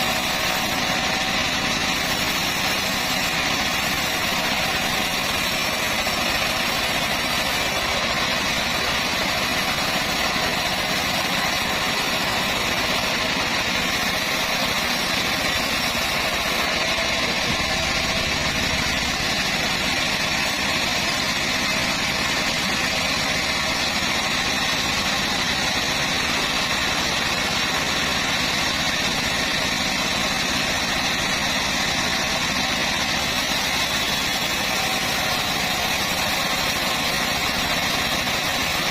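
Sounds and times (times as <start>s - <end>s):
band saw cutting wood: 0.0s - 38.9s.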